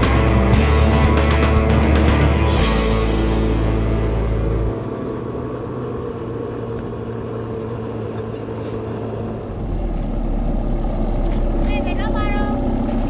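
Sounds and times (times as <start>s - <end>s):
background music: 0.0s - 6.0s
motorcycle engine running: 0.0s - 13.0s
road and wind noise: 0.0s - 13.0s.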